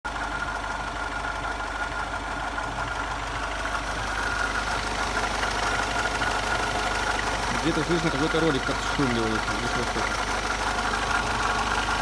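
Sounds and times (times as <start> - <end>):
diesel engine idling: 0.1 - 12.0.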